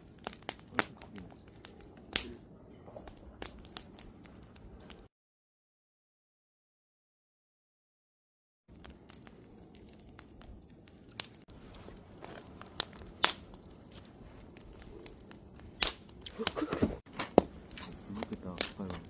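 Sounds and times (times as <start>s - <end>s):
campfire crackling and popping: 0.0s - 5.1s, 8.7s - 19.0s
low rush of flame: 0.0s - 5.1s, 8.7s - 19.0s.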